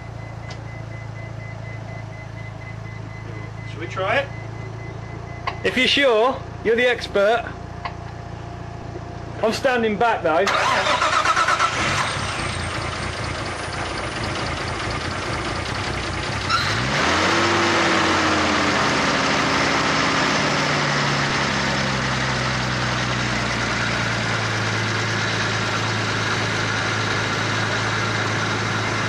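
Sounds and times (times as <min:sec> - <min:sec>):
car engine starting and idling: 0:00.0 - 0:29.0.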